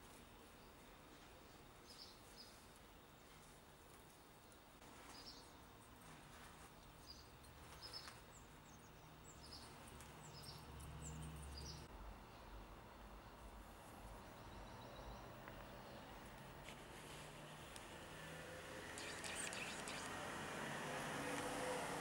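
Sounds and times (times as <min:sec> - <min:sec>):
small bird chirping: 0:05.0 - 0:05.7, 0:06.4 - 0:11.9, 0:18.9 - 0:20.4.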